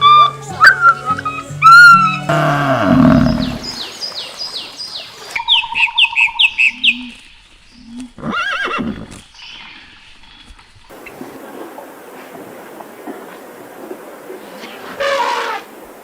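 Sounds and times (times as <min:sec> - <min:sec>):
short animal calls: 0:14.8 - 0:15.7.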